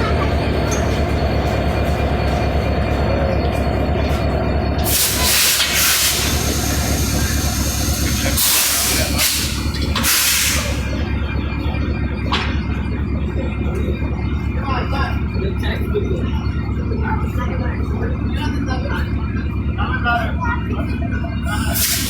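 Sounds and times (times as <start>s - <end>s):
diesel locomotive idling: 0.0s - 22.0s
compressed air hissing: 4.8s - 10.8s, 21.8s - 22.0s.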